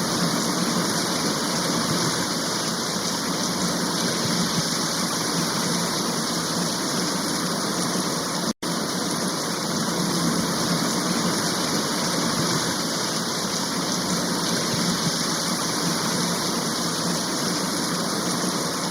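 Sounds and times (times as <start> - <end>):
steady rain hiss: 0.0 - 18.9.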